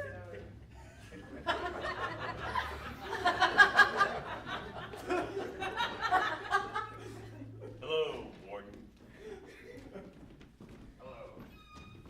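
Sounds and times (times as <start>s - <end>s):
audience laughing: 0.0s - 8.3s.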